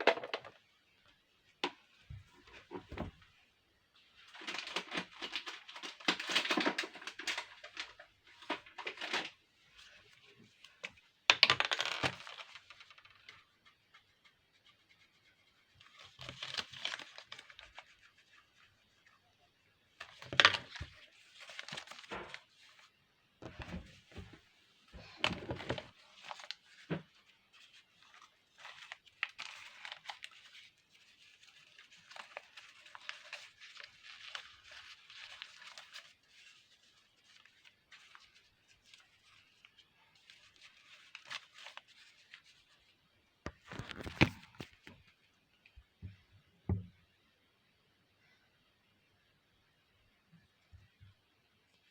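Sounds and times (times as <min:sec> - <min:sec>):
craft material crackling and tearing: 0:43.5 - 0:45.0.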